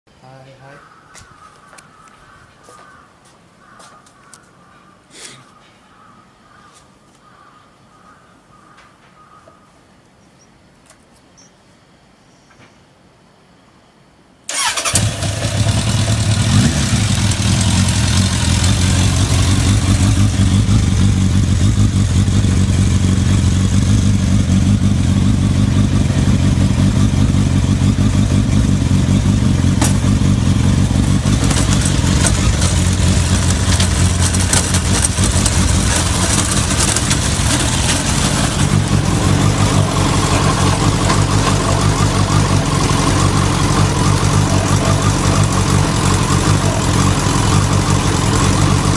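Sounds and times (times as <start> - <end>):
motorcycle engine starting and running: 14.5 - 48.9.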